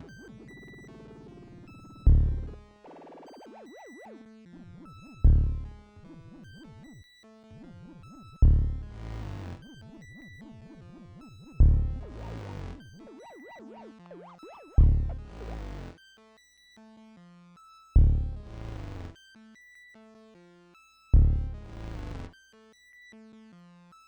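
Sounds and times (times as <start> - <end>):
low synth boom: 11.6 - 12.0.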